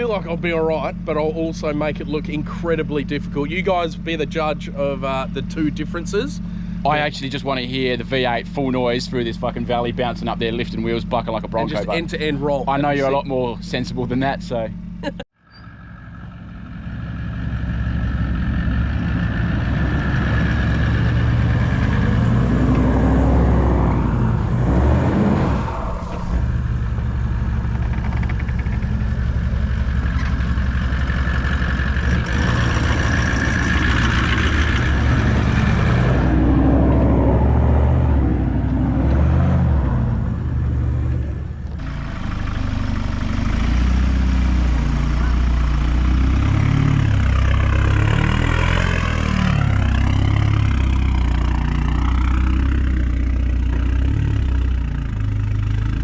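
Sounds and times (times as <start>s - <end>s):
vehicle engine revving under load: 16.0s - 56.0s.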